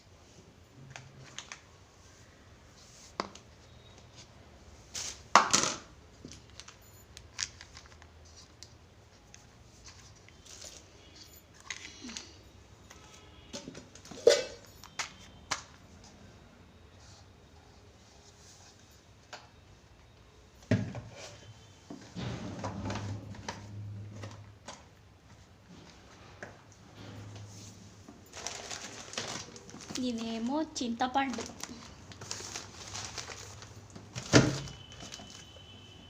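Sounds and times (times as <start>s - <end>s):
plastic covers rustling: 0.8s - 13.2s, 27.2s - 36.0s.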